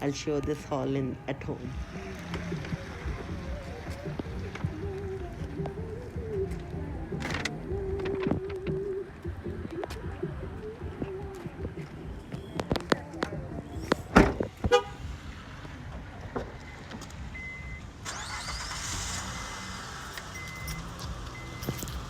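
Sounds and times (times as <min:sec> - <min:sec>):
car engine running: 0:01.7 - 0:22.0
loud thump: 0:14.0 - 0:14.7.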